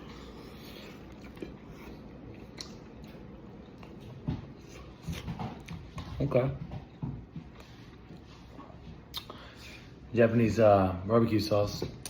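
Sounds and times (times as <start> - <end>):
person chewing meat: 0.0 - 5.9
wet mouth clicks: 9.1 - 9.4.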